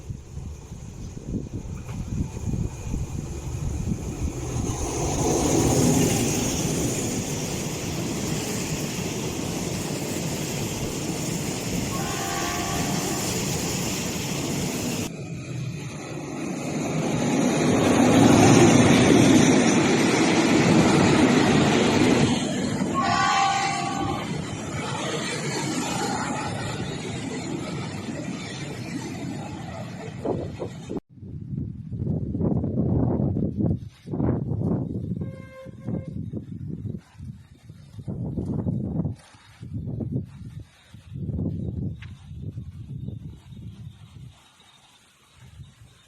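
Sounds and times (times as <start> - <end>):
diesel train rumbling past: 0.0 - 31.0
multi-tone train horn blast: 11.9 - 13.4, 22.9 - 24.4, 35.2 - 36.3.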